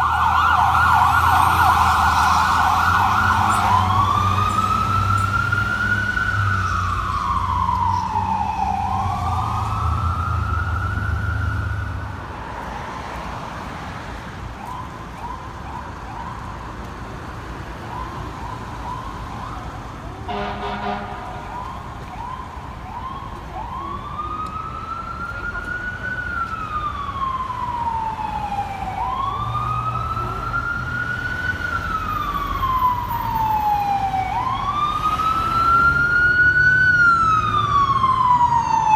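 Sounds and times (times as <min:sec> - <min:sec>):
short rising siren whoops: 0:00.0 - 0:12.0
fire engine siren wailing: 0:00.0 - 0:13.8, 0:14.4 - 0:38.9
horn blast: 0:20.3 - 0:21.5.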